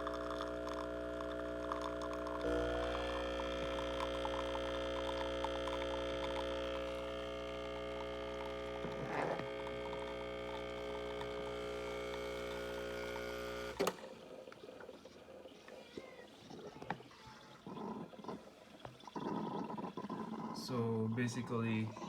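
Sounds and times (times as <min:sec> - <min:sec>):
espresso machine pump humming: 0:00.0 - 0:14.1.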